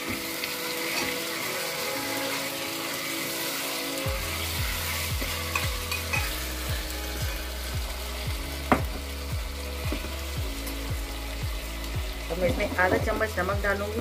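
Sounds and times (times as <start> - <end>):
vegetables sizzling in oil: 0.0 - 14.0
ladle stirring and scraping: 4.2 - 6.5.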